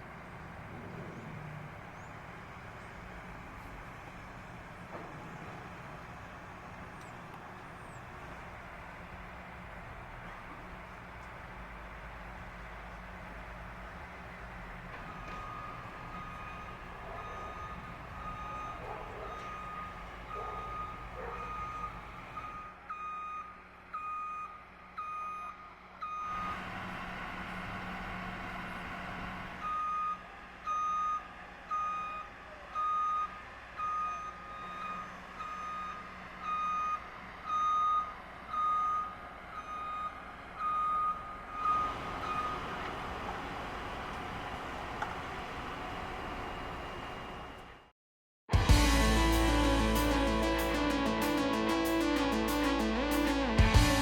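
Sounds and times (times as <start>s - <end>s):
engine humming: 0.0s - 22.7s, 48.6s - 54.0s
reversing alarm beeping: 15.0s - 26.5s, 29.6s - 42.8s.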